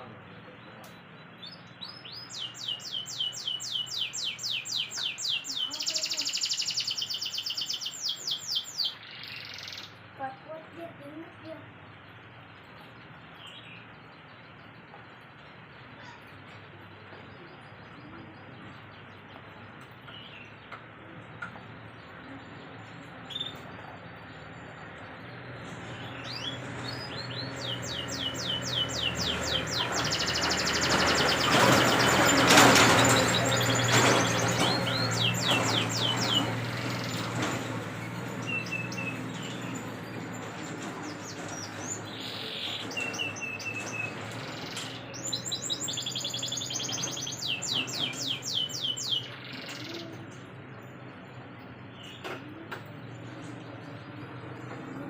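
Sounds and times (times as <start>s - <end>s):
canary singing trills: 1.0s - 10.2s, 25.9s - 50.4s.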